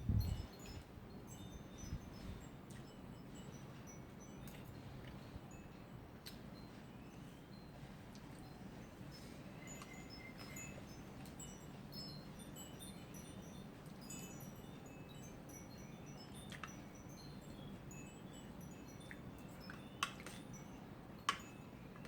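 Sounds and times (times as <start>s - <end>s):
strong wind rushing: 0.0s - 0.5s
wind chimes tinkling: 0.0s - 22.0s.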